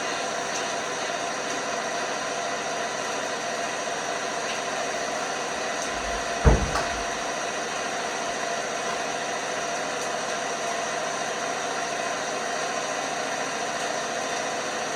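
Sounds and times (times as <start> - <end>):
washing machine hum: 0.0 - 14.9
loud thump in drum: 5.9 - 7.2
small knock: 5.9 - 7.2.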